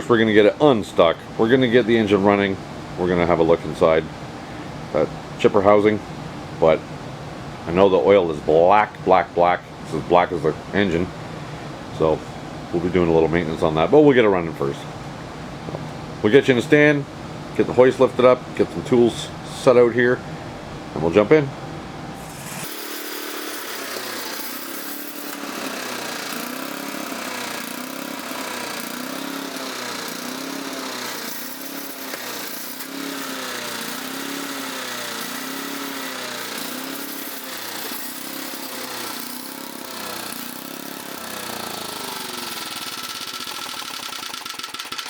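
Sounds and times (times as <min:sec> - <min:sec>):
small gasoline engine hunting: 0:22.2 - 0:45.0.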